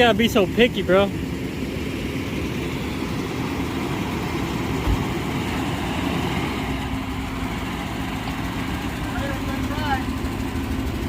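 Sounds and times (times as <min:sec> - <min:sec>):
vehicle engine idling: 0:00.0 - 0:11.0
brief low thump: 0:04.8 - 0:05.1.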